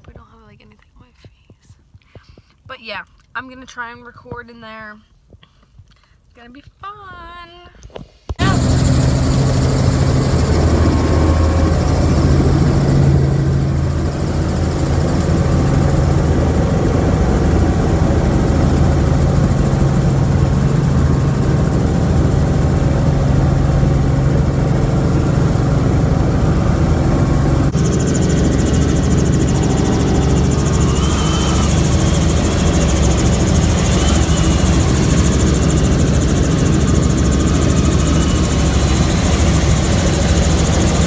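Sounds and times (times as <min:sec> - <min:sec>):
helicopter engine and rotors: 0:08.4 - 0:41.0.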